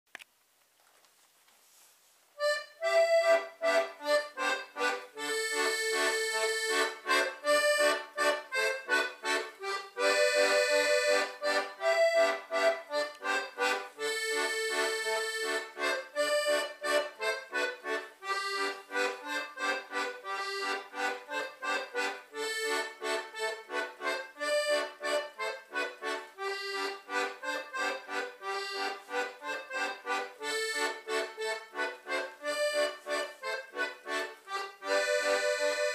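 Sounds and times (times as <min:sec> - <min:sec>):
concertina playing folk tune: 0:02.4 - 0:35.9.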